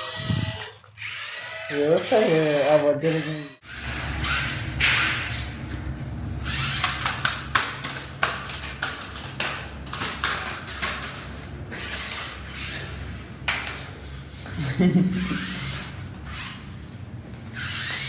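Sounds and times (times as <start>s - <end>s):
toy truck motor hum: 0.0s - 5.1s, 17.6s - 18.0s.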